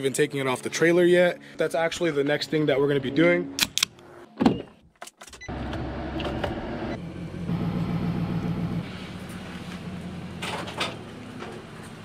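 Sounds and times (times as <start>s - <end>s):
vehicle engine starting and idling: 5.5s - 12.0s.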